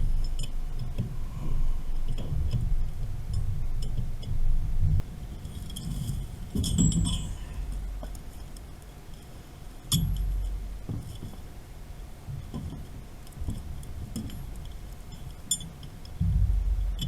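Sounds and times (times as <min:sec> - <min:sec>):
metallic clinks of tools: 0:06.6 - 0:07.8
low rumble: 0:16.2 - 0:17.0.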